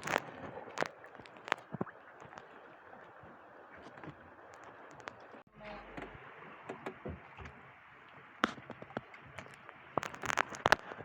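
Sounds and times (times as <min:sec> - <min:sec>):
water wash: 0:00.0 - 0:11.0
knocks and clicks on boat: 0:03.8 - 0:11.0.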